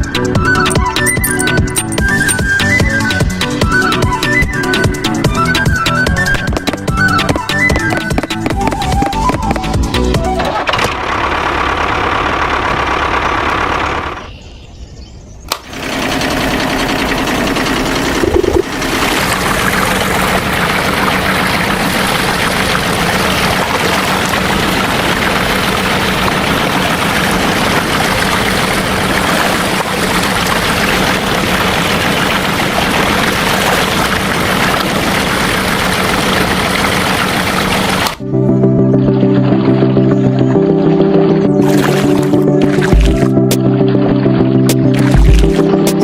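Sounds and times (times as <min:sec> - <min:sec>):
small motor running: 0:15.6 - 0:38.1.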